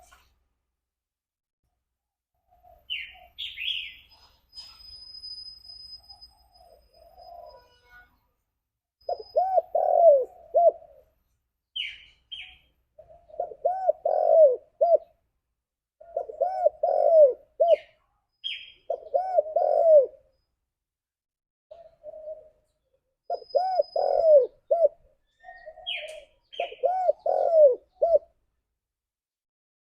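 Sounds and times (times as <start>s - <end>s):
small bird chirps: 2.4s - 8.3s, 9.0s - 15.2s, 16.0s - 20.7s, 21.7s - 28.2s
dove cooing: 9.0s - 11.1s, 12.4s - 15.2s, 16.0s - 18.0s, 18.8s - 20.3s, 21.7s - 28.4s.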